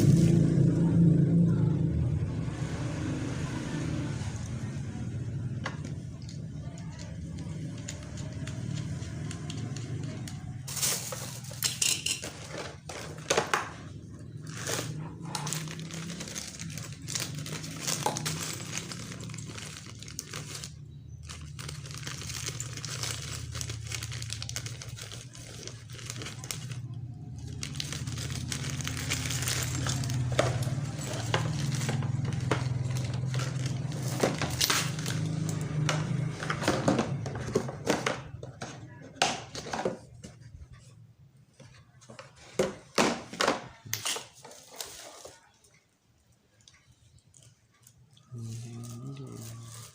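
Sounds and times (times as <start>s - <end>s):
plastic packaging crinkling: 6.0s - 37.9s, 43.7s - 45.6s.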